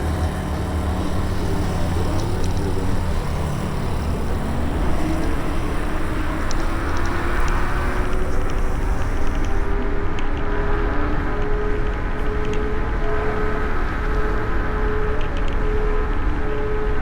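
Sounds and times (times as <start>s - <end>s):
faint electric motor whine: 0.0s - 10.4s
road noise: 0.0s - 12.4s.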